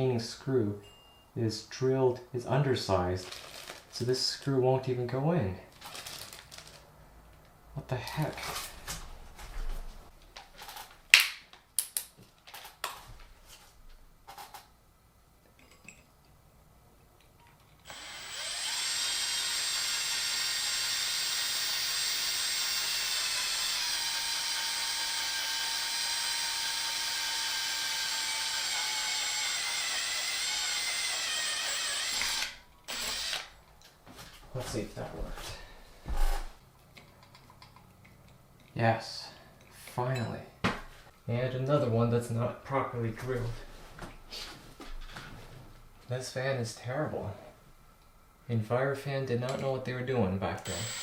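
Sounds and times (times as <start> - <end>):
parts being handled: 3.2 - 4.0, 5.7 - 14.7
electric drill running: 17.9 - 33.5, 50.6 - 51.0.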